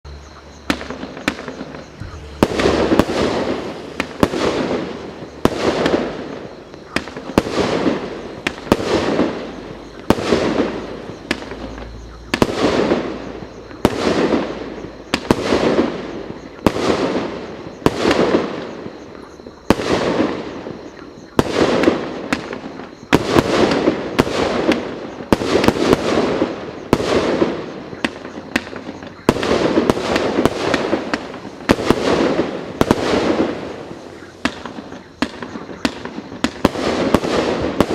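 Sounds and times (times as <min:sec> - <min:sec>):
firework battery bangs: 0:00.7 - 0:19.0.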